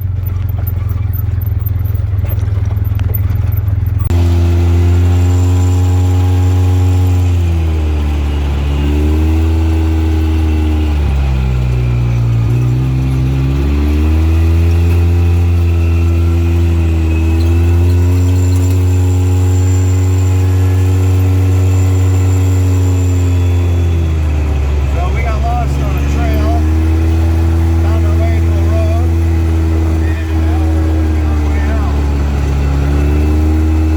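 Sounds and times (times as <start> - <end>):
off-road vehicle engine running: 0.0 - 33.9.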